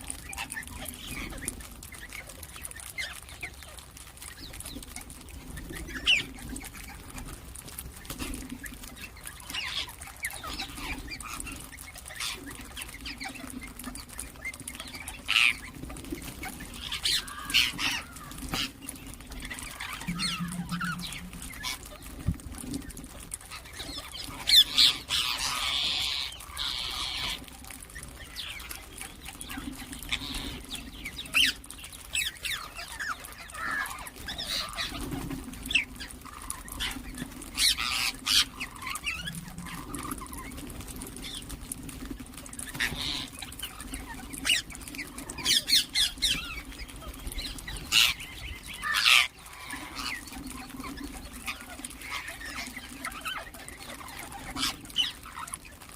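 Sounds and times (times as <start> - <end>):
parakeets squawking and chirping: 0.2 - 55.9
steady low hum: 19.2 - 22.8.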